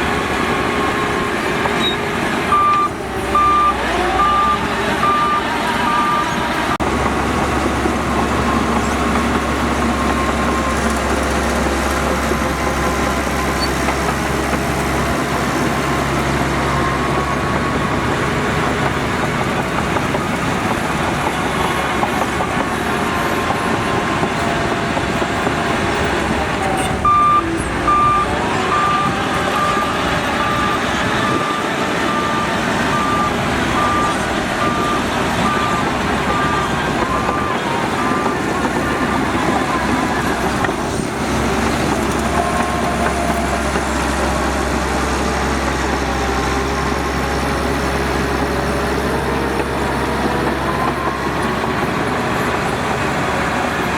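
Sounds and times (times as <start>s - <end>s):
diesel earthmoving machinery running: 0.0s - 53.9s
reversing alarm beeping: 0.6s - 6.8s, 15.1s - 24.6s, 26.7s - 43.6s, 47.0s - 52.6s.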